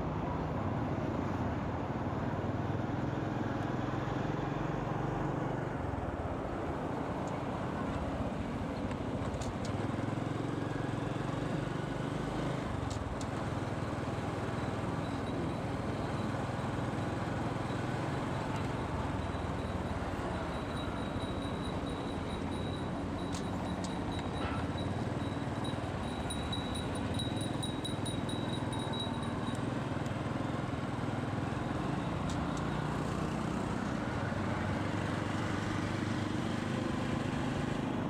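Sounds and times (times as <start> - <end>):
wind and road noise: 0.0 - 38.0
motorcycle engine running: 12.2 - 34.6.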